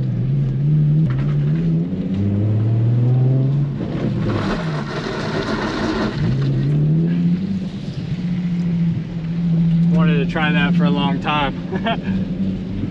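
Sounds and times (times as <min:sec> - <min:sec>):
car engine revving: 0:00.0 - 0:12.9.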